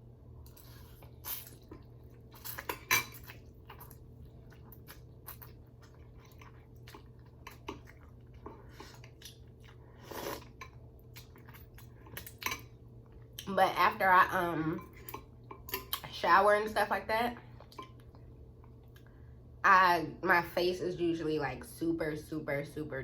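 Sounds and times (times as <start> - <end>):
person chewing noodles: 0.4 - 13.5.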